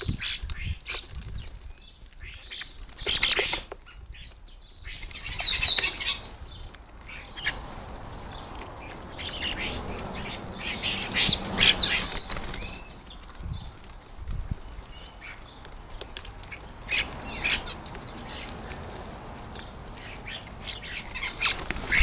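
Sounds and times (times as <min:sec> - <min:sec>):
birds flapping wings: 0:02.1 - 0:22.0
birds whistling sliding calls: 0:02.4 - 0:03.7, 0:04.9 - 0:13.2, 0:16.9 - 0:18.6, 0:19.6 - 0:22.0.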